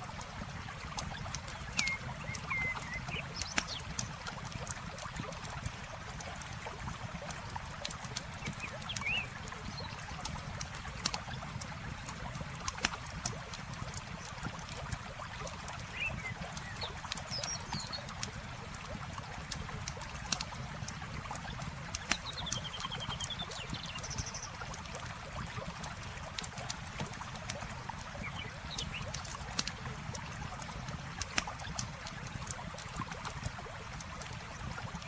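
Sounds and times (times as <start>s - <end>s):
campfire crackling: 0.0s - 17.5s, 24.1s - 34.8s
flowing water: 0.0s - 35.0s
bird chirps: 1.8s - 3.8s, 8.5s - 9.3s.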